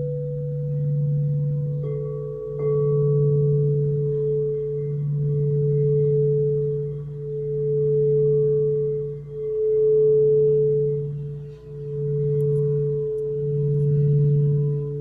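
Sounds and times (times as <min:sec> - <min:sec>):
singing bowls ringing drone: 0:00.0 - 0:15.0.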